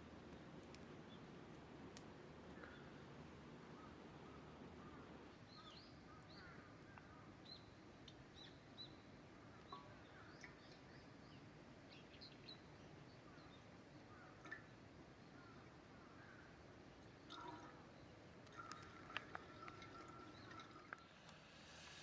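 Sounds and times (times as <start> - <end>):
small birds chirping: 5.4 - 22.0.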